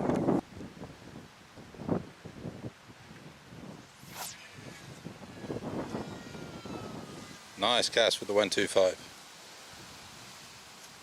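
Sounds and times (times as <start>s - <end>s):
wind noise on microphone: 0.0s - 11.0s
fishing rod whoosh: 3.7s - 7.7s
fishing reel spool whine: 3.7s - 9.1s.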